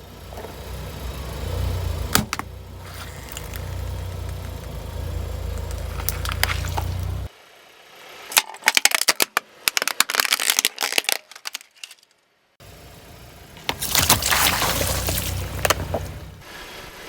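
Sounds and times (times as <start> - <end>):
car engine running: 0.0 - 8.2, 12.6 - 16.8
objects crunching under car tyre: 2.1 - 7.3, 8.3 - 12.1, 13.6 - 16.5
rushing hiss: 16.4 - 17.0.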